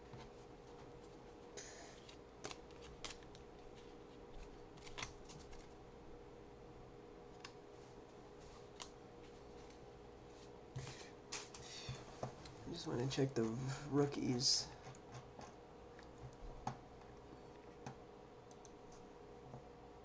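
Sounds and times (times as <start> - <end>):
low steady hum: 0.0 - 20.0
trading cards clicking and rustling: 2.0 - 5.8.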